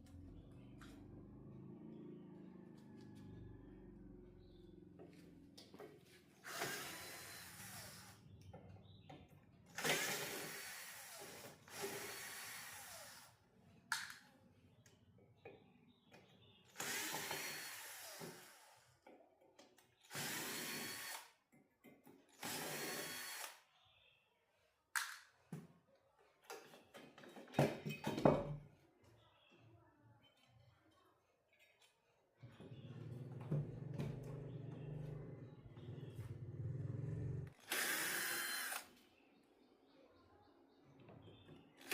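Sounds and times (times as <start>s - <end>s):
handheld power tool running: 6.4s - 8.2s, 9.8s - 13.3s, 16.8s - 18.9s, 20.1s - 21.3s, 22.4s - 23.6s, 37.4s - 38.9s.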